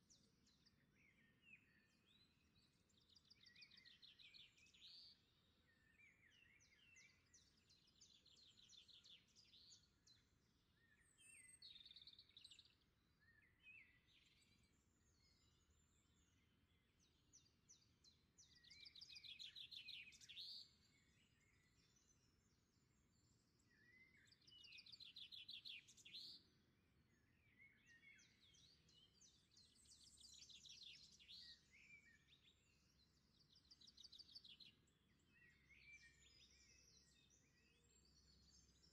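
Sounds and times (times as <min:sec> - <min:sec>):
birds singing trills and chirps: 0:00.0 - 0:38.9.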